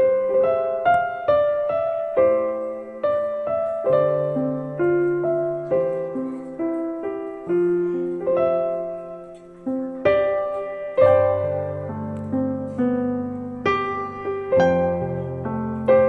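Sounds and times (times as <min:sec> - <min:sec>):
slow gentle piano melody: 0:00.0 - 0:16.0.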